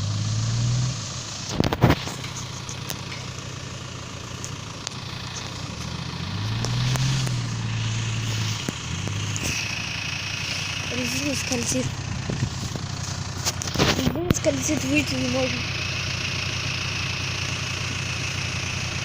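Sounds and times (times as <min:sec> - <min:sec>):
car engine revving: 0:00.0 - 0:19.0
tyres slipping in mud: 0:01.4 - 0:15.6.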